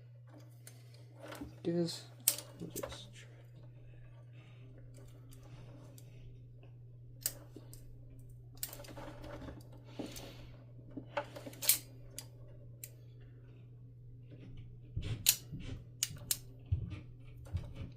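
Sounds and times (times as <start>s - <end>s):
steady low hum: 0.0s - 17.9s
wire clicks and scraping: 0.0s - 17.9s.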